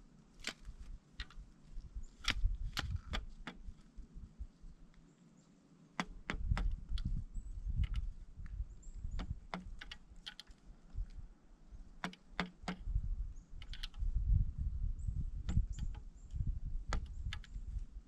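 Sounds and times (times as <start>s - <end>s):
woodpecker pecking: 0.3s - 4.0s, 5.9s - 14.1s.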